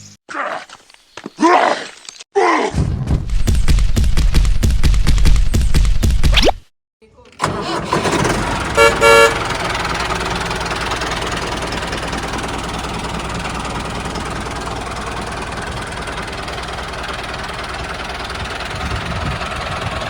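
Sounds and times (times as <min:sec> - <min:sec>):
tractor engine chugging: 0:07.3 - 0:20.0.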